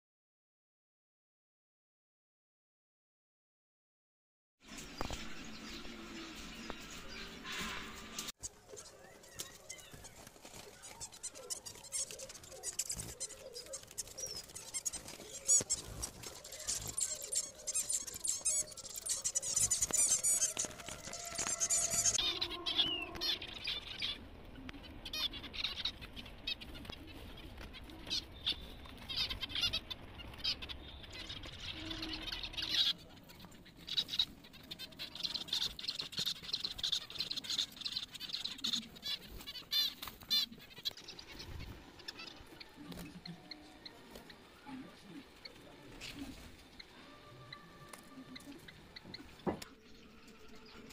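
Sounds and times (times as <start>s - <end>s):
wings fluttering: 6.4s - 46.9s
finches chirping: 8.4s - 50.9s.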